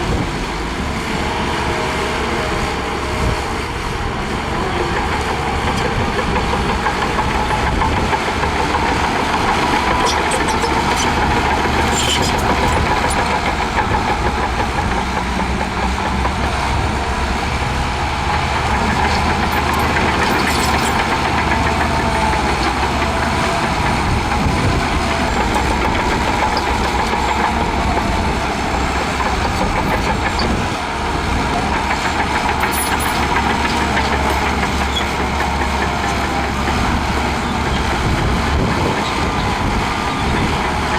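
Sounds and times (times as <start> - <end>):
bulldozer diesel engine under load: 0.0 - 40.9.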